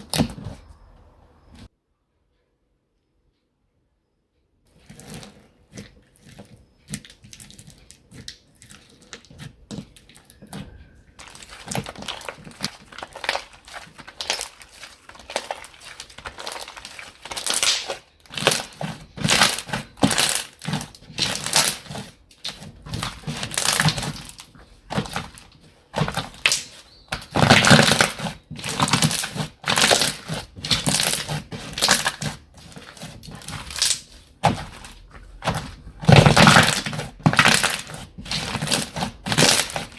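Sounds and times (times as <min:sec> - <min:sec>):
slime squeezed by hand crackling: 0:11.2 - 0:39.9.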